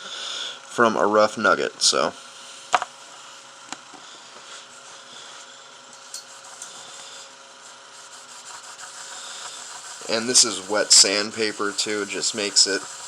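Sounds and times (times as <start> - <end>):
wet sandpaper rubbing metal: 6.2 - 13.0.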